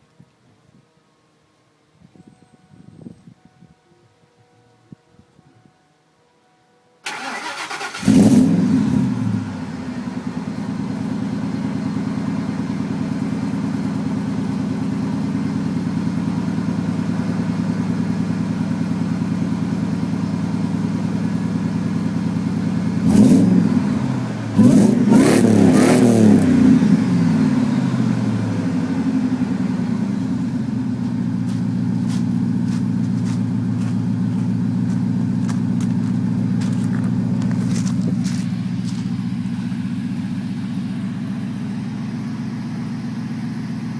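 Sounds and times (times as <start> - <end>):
truck engine idling and revving: 7.1 - 43.9.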